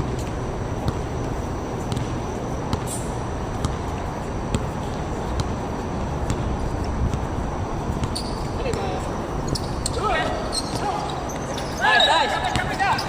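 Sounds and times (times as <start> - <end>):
low rumbling background noise: 0.0 - 13.0
basketball bouncing on hard court: 0.8 - 2.9, 3.5 - 3.9, 4.5 - 5.6, 6.2 - 7.3, 7.9 - 9.0.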